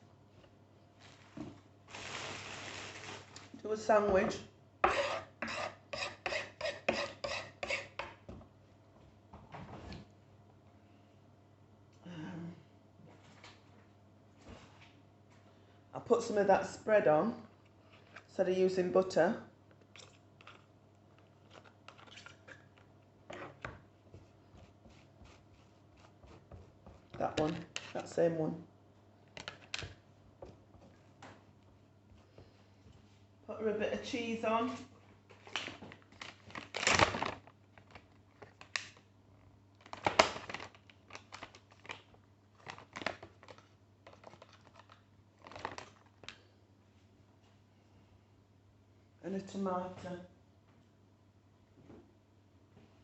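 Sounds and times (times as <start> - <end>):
food packaging rustling: 1.0 - 3.6, 35.3 - 46.4
knife spreading on bread: 4.8 - 8.0, 24.2 - 27.1.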